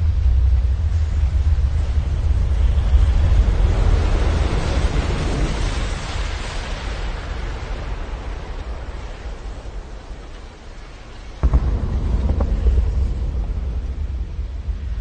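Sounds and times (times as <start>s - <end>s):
rushing wind-like noise: 0.0s - 15.0s
deep rumble: 11.4s - 15.0s.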